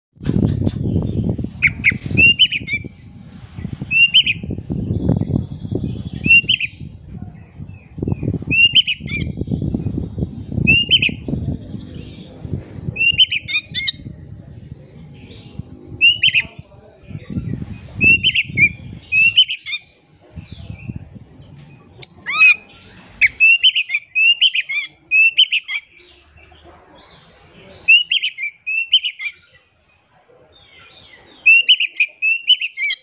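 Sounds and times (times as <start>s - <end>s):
bird whistling sharp notes: 1.6s - 2.9s, 3.9s - 4.4s, 6.1s - 6.8s, 8.5s - 9.3s.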